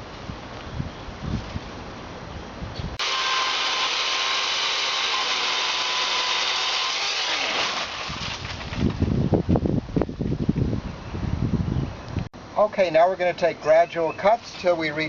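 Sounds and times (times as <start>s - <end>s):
wind on microphone: 0.0s - 3.0s, 8.1s - 12.3s
chainsaw cutting: 3.0s - 8.9s.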